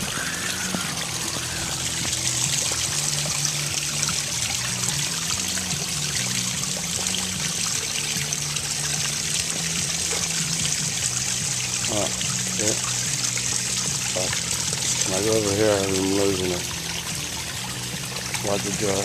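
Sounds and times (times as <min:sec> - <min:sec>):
water trickling over rocks: 0:00.0 - 0:19.0.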